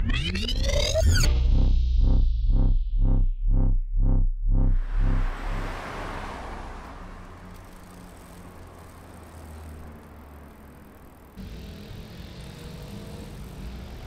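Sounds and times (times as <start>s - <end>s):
low engine hum: 1.3s - 14.0s
car passing: 4.6s - 14.0s.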